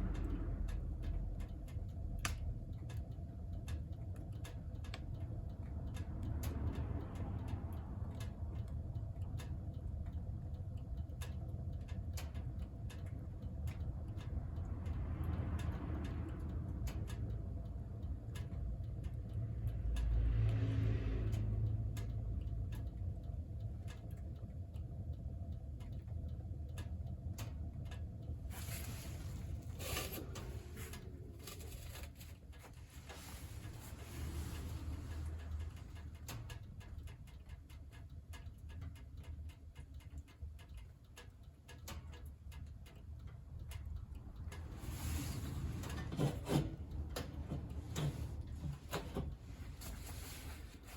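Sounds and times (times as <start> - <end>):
wood fire crackling: 0.0 - 6.4, 22.6 - 50.9
stove low rumble: 0.0 - 50.9.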